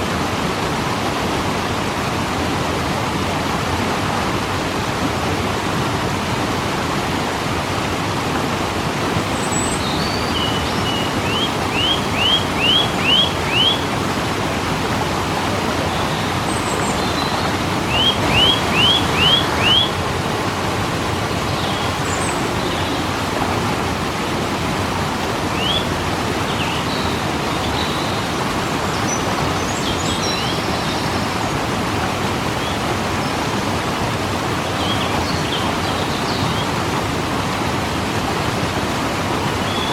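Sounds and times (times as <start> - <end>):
waterfall rushing: 0.0 - 39.9
bird chirping: 9.3 - 14.0, 15.8 - 20.0.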